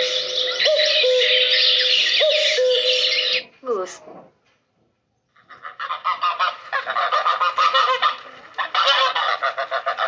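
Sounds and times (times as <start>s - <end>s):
geese honking: 5.4s - 10.0s.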